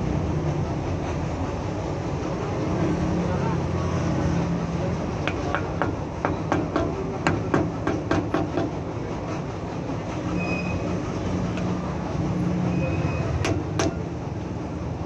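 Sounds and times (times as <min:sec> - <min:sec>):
light metallic taps: 0:05.3 - 0:07.4.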